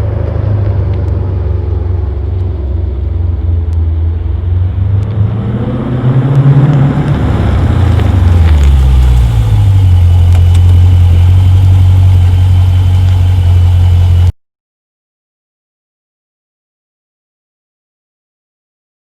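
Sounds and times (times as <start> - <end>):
loud deep exhaust drone: 0.0 - 14.3.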